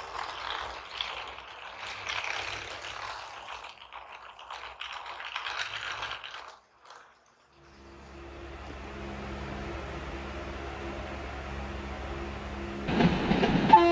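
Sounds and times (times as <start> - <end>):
train wheels clattering: 12.9 - 13.9.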